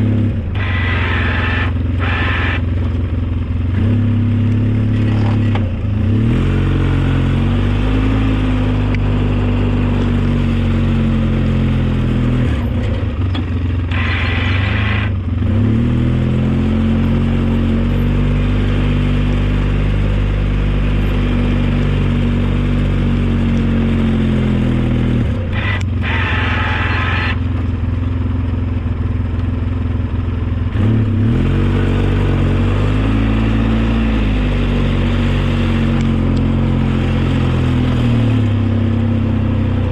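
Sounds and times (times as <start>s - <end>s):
high-pitched whine: 0.0s - 2.9s, 13.9s - 15.2s, 25.2s - 27.7s
snow plow engine running: 0.0s - 39.9s.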